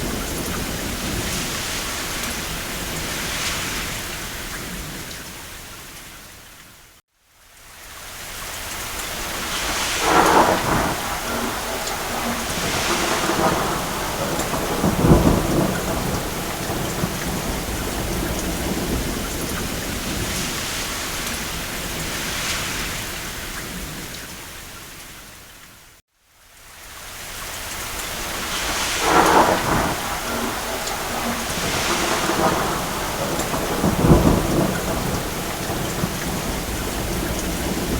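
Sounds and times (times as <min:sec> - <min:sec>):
thunder rumbling: 0:00.0 - 0:05.2, 0:09.0 - 0:24.2, 0:28.0 - 0:37.9
heavy rain on a roof: 0:00.0 - 0:37.9.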